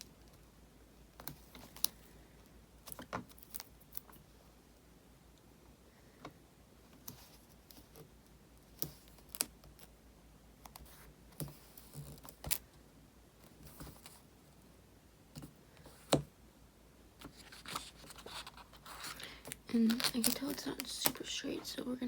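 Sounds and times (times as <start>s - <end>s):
craft knife on paper: 17.2s - 21.2s.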